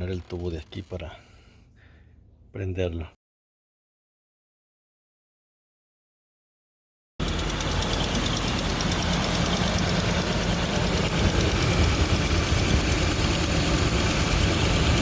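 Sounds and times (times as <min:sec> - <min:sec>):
car engine idling: 0:07.2 - 0:15.0.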